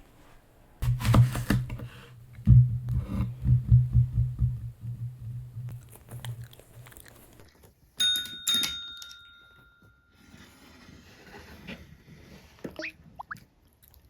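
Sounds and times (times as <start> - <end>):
desk call bell ringing: 8.0 - 10.2.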